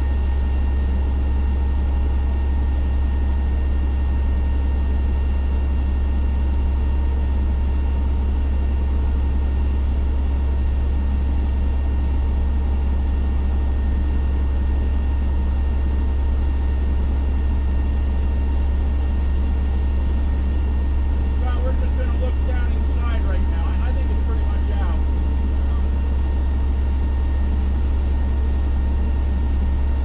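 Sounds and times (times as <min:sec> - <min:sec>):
diesel engine running: 0:16.2 - 0:30.0.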